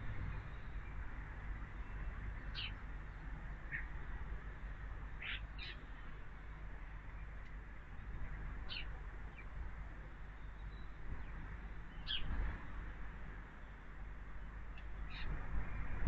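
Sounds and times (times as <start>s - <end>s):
birds chirping: 0.0s - 4.1s, 5.1s - 9.6s, 10.2s - 12.8s
low steady rumble: 0.0s - 16.0s.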